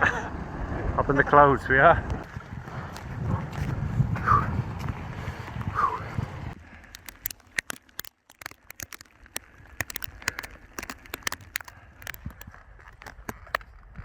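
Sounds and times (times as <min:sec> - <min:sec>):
rain tapping on tent fabric: 0:06.9 - 0:13.6.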